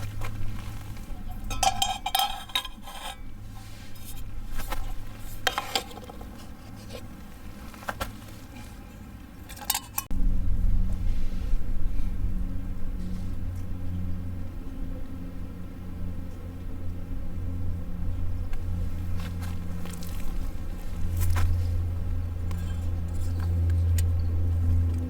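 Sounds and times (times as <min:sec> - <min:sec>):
steady low rumble: 0:00.0 - 0:08.6, 0:10.0 - 0:25.0
metal cookware clinking: 0:01.2 - 0:03.3, 0:09.5 - 0:10.1.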